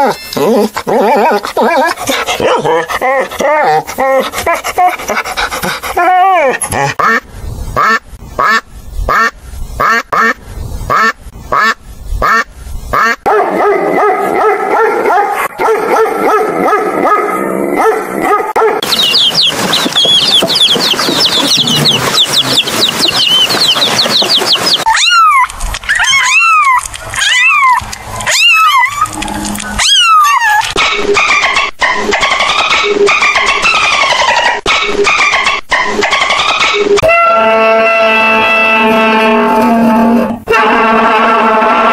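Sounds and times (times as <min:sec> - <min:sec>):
goose honking: 0:18.8 - 0:24.9
quail chicks peeping: 0:18.8 - 0:24.9
dolphin whistles: 0:18.8 - 0:25.4.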